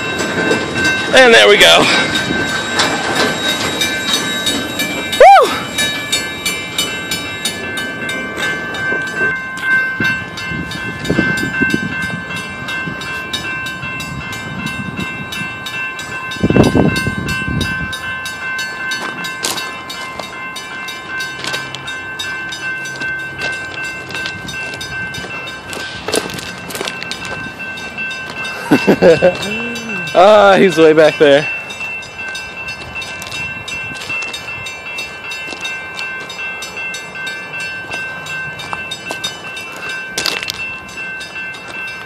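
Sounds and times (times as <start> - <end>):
train wheels clicking: 0.0 - 42.0
wheels squealing on rails: 0.0 - 42.0.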